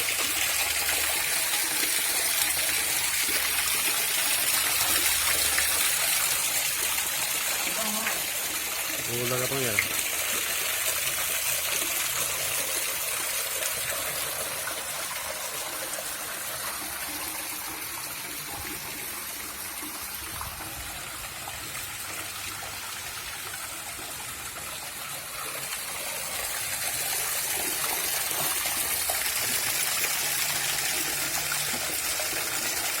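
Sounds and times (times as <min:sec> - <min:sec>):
waterfall splashing and trickling: 0:00.0 - 0:33.0.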